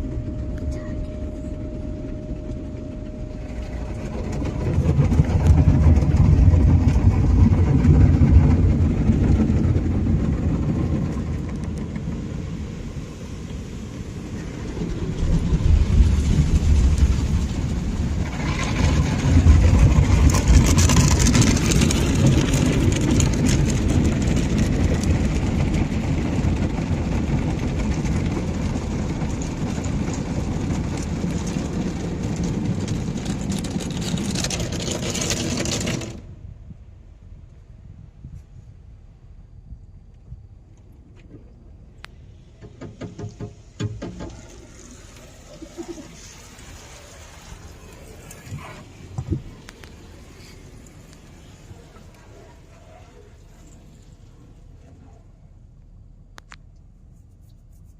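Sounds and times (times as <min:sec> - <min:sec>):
car wash deep rumble: 0:00.0 - 0:37.8, 0:40.8 - 0:57.9
loud hissing rush: 0:44.5 - 0:52.7.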